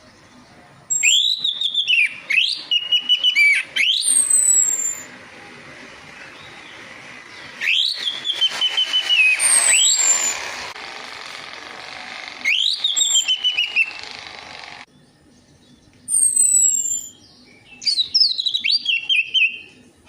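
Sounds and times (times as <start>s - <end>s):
thin high down-slurred whistles: 0.9s - 5.1s, 7.6s - 10.4s, 12.4s - 14.0s
thrush song whistled phrases: 0.9s - 5.1s, 7.3s - 10.5s, 12.4s - 14.1s.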